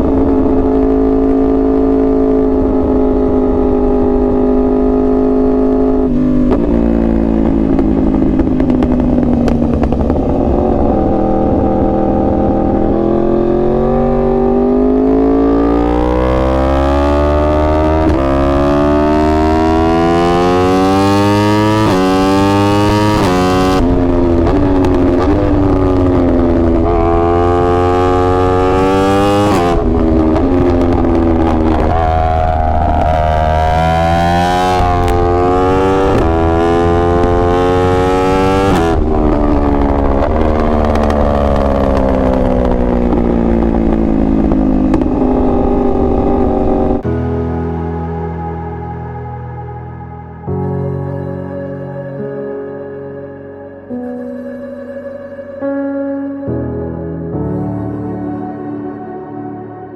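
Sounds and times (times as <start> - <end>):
motorcycle engine revving: 0.0 - 47.4.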